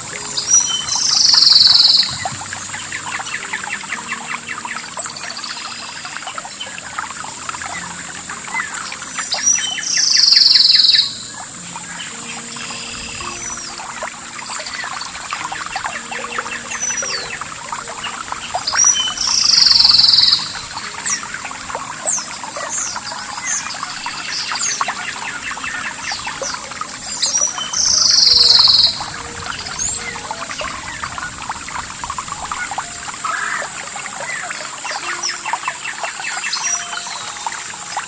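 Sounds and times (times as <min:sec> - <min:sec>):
high falling bird chirps: 0:00.0 - 0:06.7, 0:07.8 - 0:38.0
insects whining: 0:00.0 - 0:38.0.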